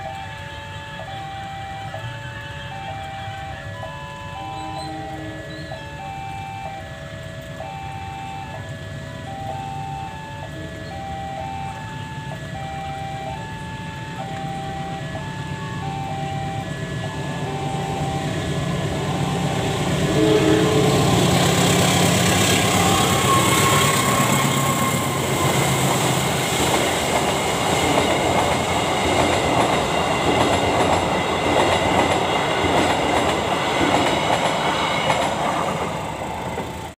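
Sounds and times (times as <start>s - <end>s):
level crossing warning tones: 0.0s - 36.9s
train rumbling past: 0.0s - 36.9s
wheels clattering over rail joints: 20.8s - 36.9s.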